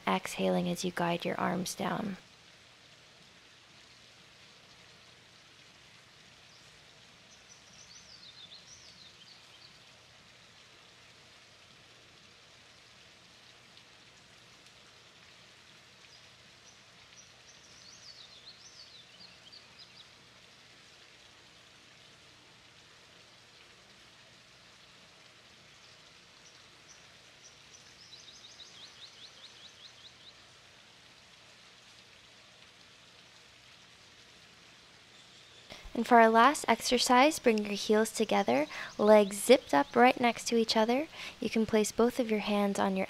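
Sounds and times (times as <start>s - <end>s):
outdoor background hiss: 0.0s - 43.0s
small bird singing: 7.3s - 9.8s, 16.1s - 20.1s, 26.4s - 30.4s.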